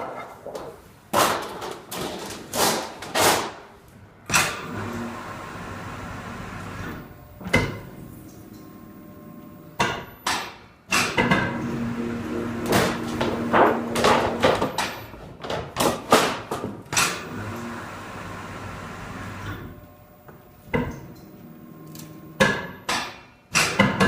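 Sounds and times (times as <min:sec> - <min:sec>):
machine hum: 0:04.6 - 0:10.3, 0:11.2 - 0:15.3, 0:17.2 - 0:22.9.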